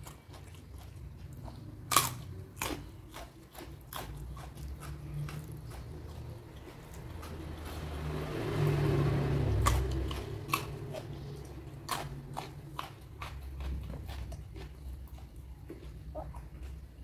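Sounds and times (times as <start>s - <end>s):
chewing: 0.0s - 17.0s
crunchy bites: 1.5s - 6.3s.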